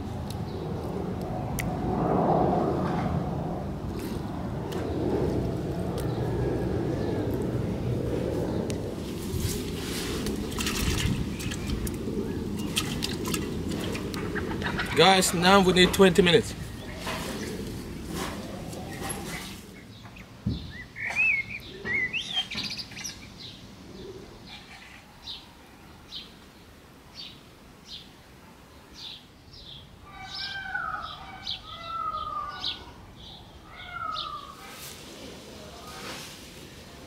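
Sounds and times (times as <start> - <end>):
songbirds chirping and singing: 10.9 - 28.1, 28.8 - 34.7.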